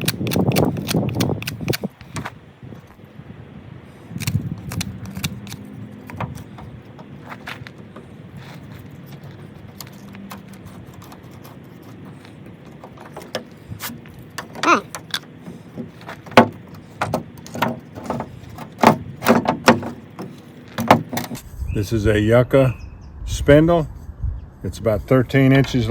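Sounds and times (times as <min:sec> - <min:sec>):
sharp clicks and knocks: 0:08.8 - 0:21.4.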